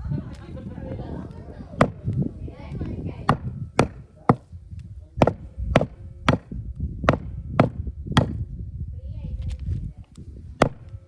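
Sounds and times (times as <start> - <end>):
cleaver chopping meat: 1.8 - 2.2, 3.2 - 4.5, 5.2 - 8.4, 10.6 - 11.0.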